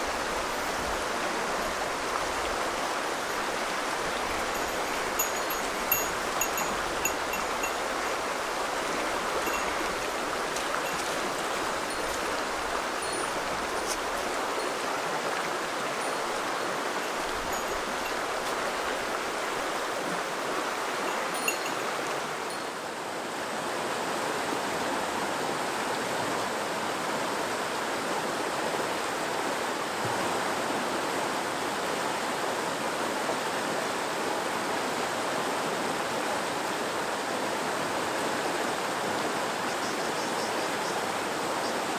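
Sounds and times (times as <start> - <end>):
river water flowing: 0.0 - 41.9.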